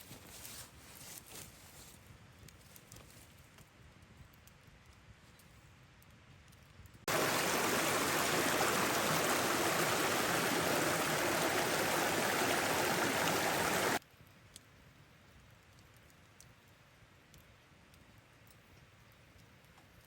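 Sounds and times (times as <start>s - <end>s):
rushing river water: 7.1s - 14.0s.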